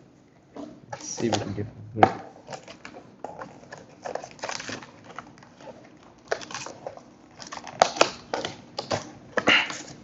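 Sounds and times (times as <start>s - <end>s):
foil wrapper crinkling and tearing: 2.4s - 10.0s.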